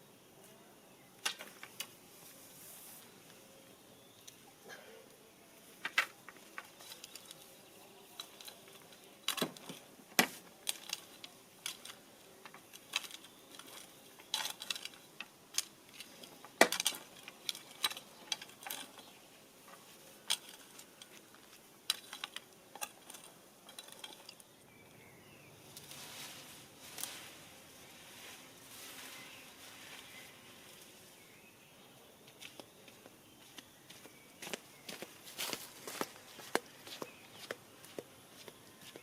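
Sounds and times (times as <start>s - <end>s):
small hard objects clicking: 5.8s - 24.6s.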